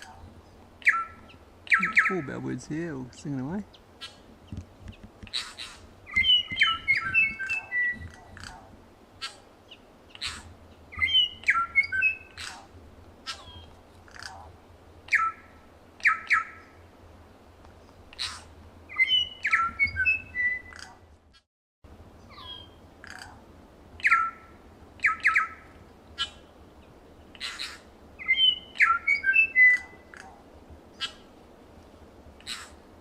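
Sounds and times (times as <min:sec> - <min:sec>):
bellbirds singing: 0:00.8 - 0:02.6, 0:06.1 - 0:08.5
short sharp bird calls: 0:27.3 - 0:30.4, 0:32.4 - 0:32.8.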